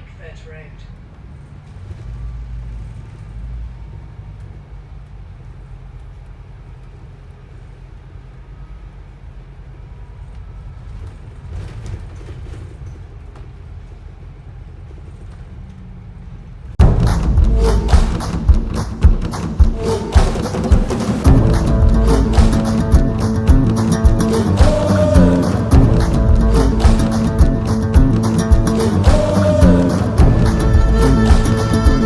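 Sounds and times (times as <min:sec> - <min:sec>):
bus engine and road rumble: 0:00.0 - 0:32.0
loud music: 0:16.8 - 0:32.0.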